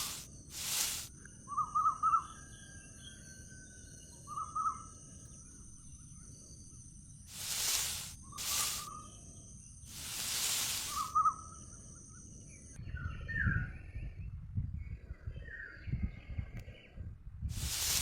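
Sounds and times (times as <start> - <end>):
rushing noise: 0.0 - 1.1, 7.3 - 8.9, 9.9 - 11.1, 17.5 - 18.0
faint high whine: 0.0 - 1.4, 5.2 - 12.8.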